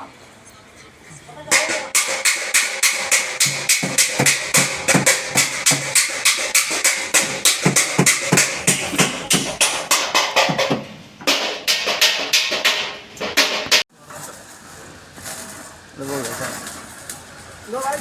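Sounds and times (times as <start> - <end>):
metal panel ringing: 1.5 - 13.8
hammer blows on sheet metal: 1.5 - 13.9.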